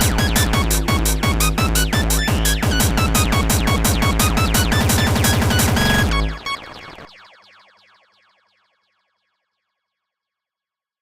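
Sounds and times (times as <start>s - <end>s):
rapid repeating clicks: 0.0s - 6.5s
electronic music: 0.0s - 7.3s.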